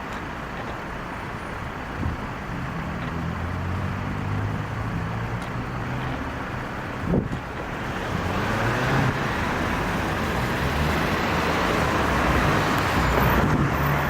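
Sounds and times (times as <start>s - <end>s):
diesel engine hum: 0.0s - 14.0s
road and tyre noise: 0.0s - 14.0s.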